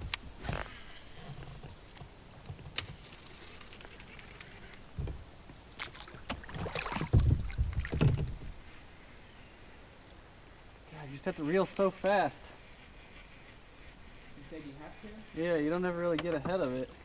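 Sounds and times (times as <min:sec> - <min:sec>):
paddle strokes splashing water: 0:05.7 - 0:08.5.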